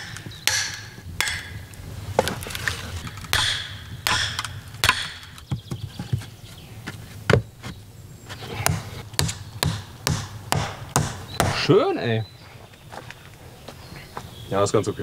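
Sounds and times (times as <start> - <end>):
tool knocking on wood: 8.7 - 11.7.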